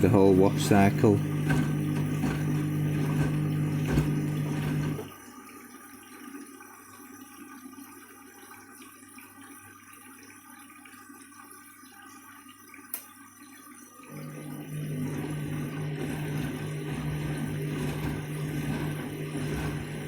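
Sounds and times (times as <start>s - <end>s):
washing machine motor hum: 0.0s - 5.3s, 14.0s - 20.0s
draining water trickle: 0.0s - 20.0s.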